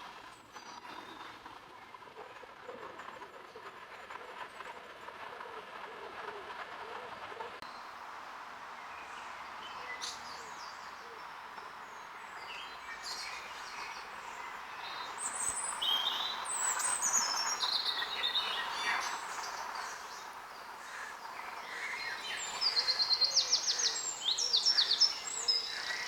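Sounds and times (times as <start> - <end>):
outdoor background hiss: 7.6 - 26.0
small birds chirping: 8.8 - 26.0.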